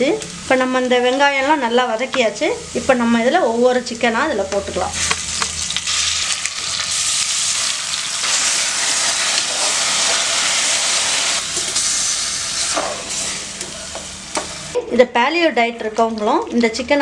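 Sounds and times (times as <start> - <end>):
chicken sizzling in hot oil: 4.7 - 14.8.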